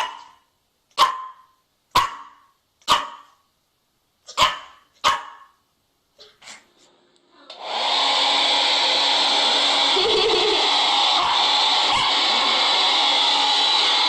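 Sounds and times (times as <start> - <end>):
dog barking: 0.0 - 3.4, 4.3 - 5.6, 11.9 - 12.2
hair dryer blowing: 7.5 - 14.0.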